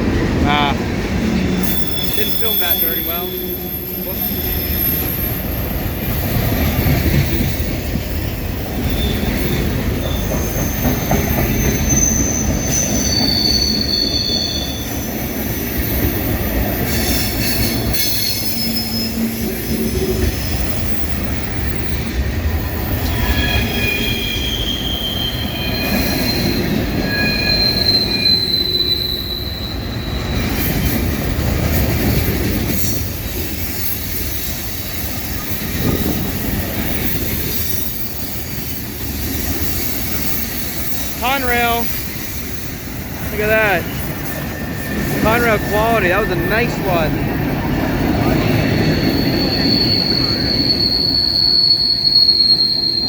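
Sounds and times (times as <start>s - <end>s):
steel wheels rumbling on rail: 0.0s - 53.0s
high-pitched wheel squeal: 1.6s - 7.0s, 8.6s - 19.8s, 23.1s - 30.8s, 48.4s - 53.0s.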